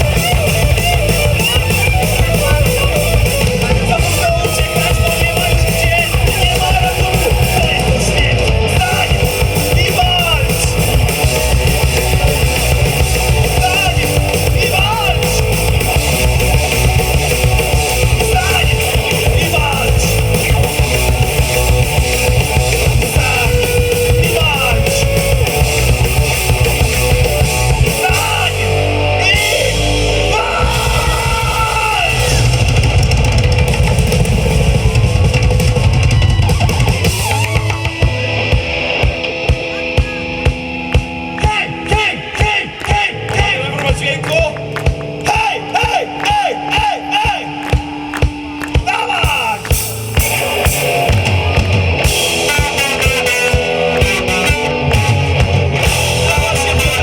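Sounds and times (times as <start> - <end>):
lead guitar bending notes: 0.0 - 57.0
rock band playing: 0.0 - 57.0
drum hits: 30.6 - 44.0.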